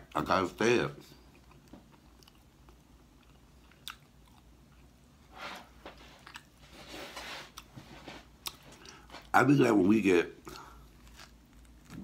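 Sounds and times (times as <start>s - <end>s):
person chewing: 1.0s - 5.2s, 5.9s - 6.8s, 7.5s - 9.3s, 10.4s - 12.0s
crunchy bites: 10.4s - 12.0s.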